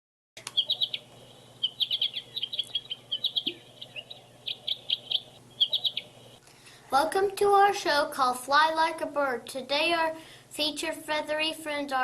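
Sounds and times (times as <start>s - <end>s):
songbird chirping: 0.4s - 6.4s.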